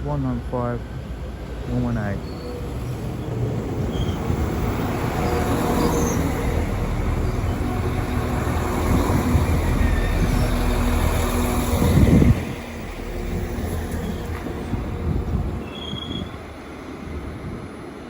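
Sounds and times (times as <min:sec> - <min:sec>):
diesel train engine drone: 0:00.0 - 0:18.0
train wheels rumbling on rails: 0:00.0 - 0:18.0.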